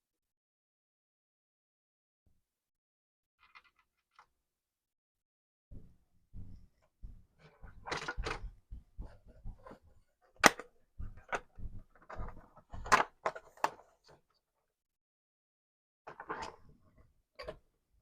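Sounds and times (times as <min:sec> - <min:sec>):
soft handling noise: 0:06.4 - 0:14.4
sharp plastic clicks and knocks: 0:07.0 - 0:13.9.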